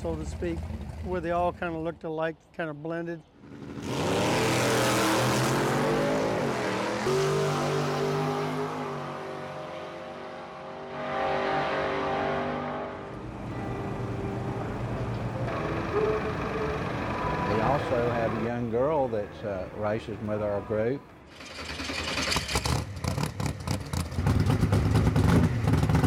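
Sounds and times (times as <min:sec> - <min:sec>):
racing car engines revving: 0:03.4 - 0:13.4.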